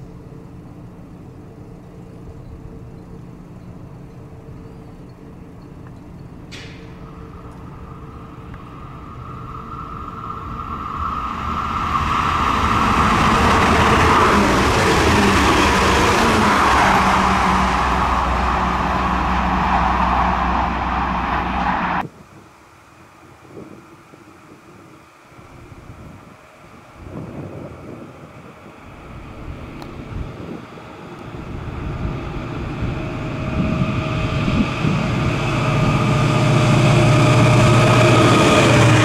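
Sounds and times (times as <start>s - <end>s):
train passing at speed: 0.0s - 39.0s.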